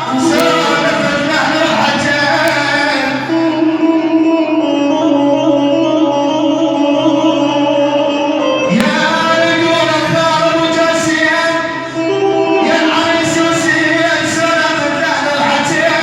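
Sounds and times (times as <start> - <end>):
instrumental accompaniment: 0.0 - 4.7
man singing long held notes: 0.0 - 16.0.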